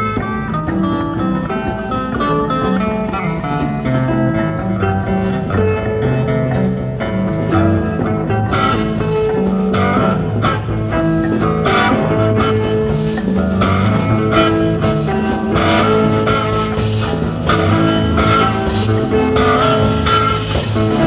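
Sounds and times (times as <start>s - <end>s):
bass guitar: 0.0s - 21.0s
drums: 0.0s - 21.0s
electric guitar lines: 0.0s - 21.0s.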